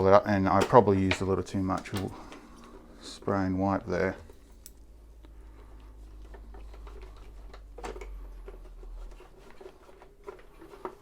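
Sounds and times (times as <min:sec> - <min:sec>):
handling clicks and taps: 0:00.4 - 0:02.8.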